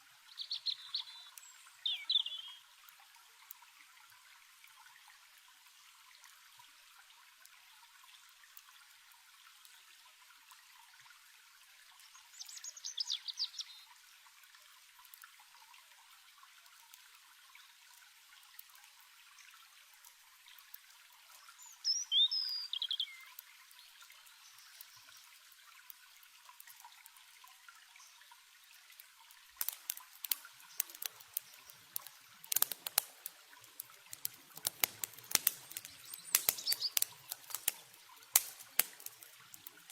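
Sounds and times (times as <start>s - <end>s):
stream trickling: 0.0s - 39.9s
songbird chirps: 0.2s - 2.8s, 12.0s - 14.0s, 21.2s - 25.4s, 29.7s - 39.4s
campfire crackling: 28.2s - 39.9s.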